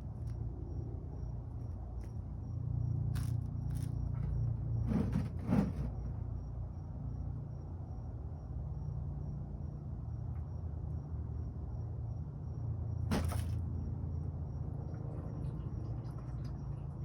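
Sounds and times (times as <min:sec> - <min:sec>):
parts scraping and knocking: 0:03.2 - 0:06.2.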